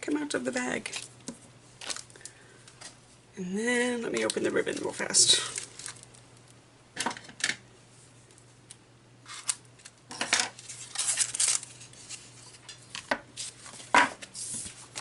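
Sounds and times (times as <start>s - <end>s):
packaging rustling: 1.8s - 3.0s, 4.1s - 6.2s, 9.3s - 15.0s.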